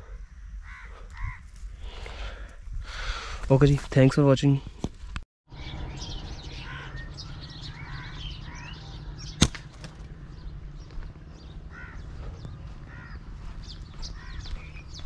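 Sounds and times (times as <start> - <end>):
birds chirping: 5.5 - 15.0
low rumble: 5.5 - 15.0.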